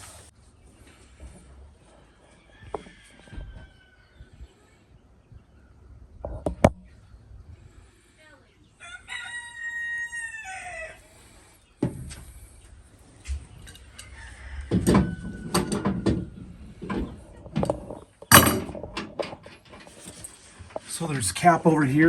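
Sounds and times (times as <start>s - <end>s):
rooster crowing: 1.9s - 4.3s, 8.8s - 11.2s, 13.8s - 16.4s
knocks and rustles of handling: 14.6s - 20.9s.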